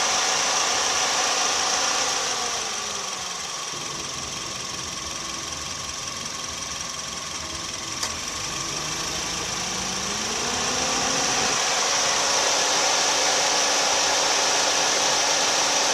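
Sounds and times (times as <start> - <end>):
car engine running: 0.0 - 15.9.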